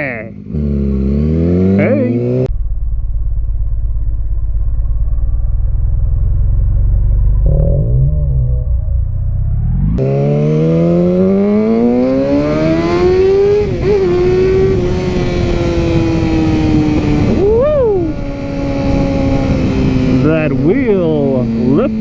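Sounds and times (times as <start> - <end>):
motorcycle engine accelerating: 0.0 - 22.0
wind rush on microphone: 12.0 - 22.0.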